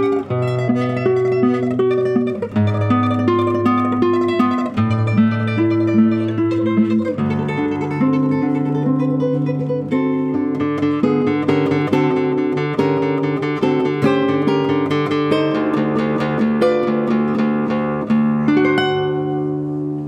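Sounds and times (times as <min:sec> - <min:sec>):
classical guitar tremolo melody: 0:00.0 - 0:20.0.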